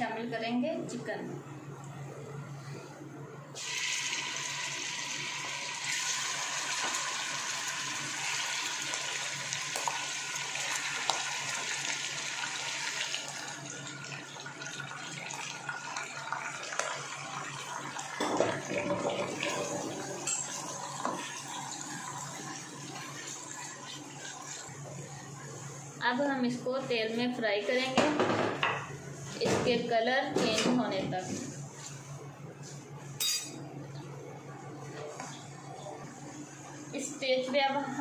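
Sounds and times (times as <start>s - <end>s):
chicken sizzling in hot oil: 3.6s - 18.2s.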